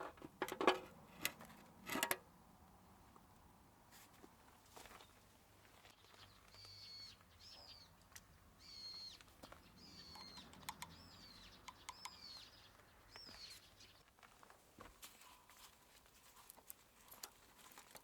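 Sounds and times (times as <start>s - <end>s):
bird chirps: 6.0s - 8.0s, 8.6s - 14.0s.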